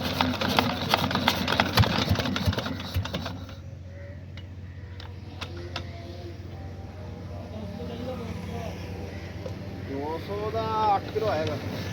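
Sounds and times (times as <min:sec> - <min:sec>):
diesel engine clattering: 0:00.0 - 0:06.0
low steady engine hum: 0:00.0 - 0:11.9.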